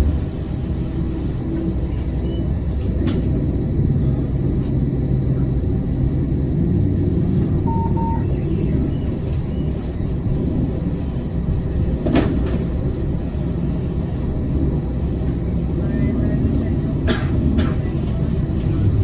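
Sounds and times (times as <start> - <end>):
tram low rumble: 0.0 - 19.0
short double beep: 7.6 - 8.4.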